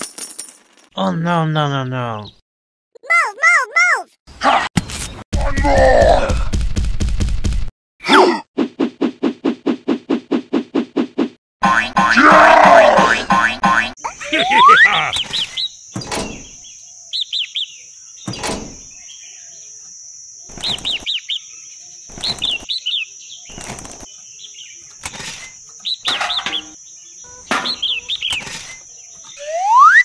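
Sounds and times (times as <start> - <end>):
small birds chirping: 14.0 - 30.0.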